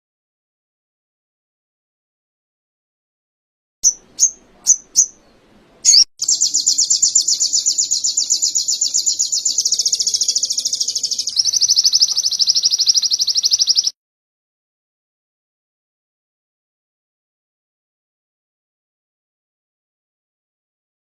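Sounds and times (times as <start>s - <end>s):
songbird chirping and trilling: 3.8s - 14.0s.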